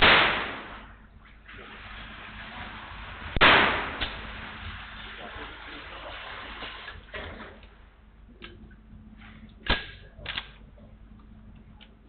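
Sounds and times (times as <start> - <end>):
gunshots: 0.0 - 0.9, 3.4 - 4.3.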